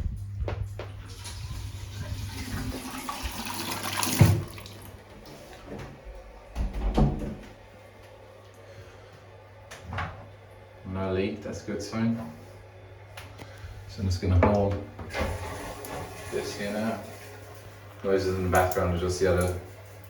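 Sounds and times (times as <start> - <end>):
water hissing through pipes: 1.0 - 5.7, 15.1 - 20.0
knocks and thuds: 6.6 - 7.4.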